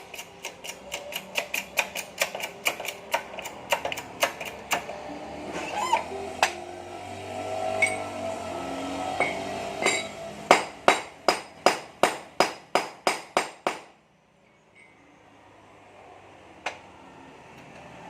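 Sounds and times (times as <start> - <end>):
hammer striking metal: 9.2 - 13.9.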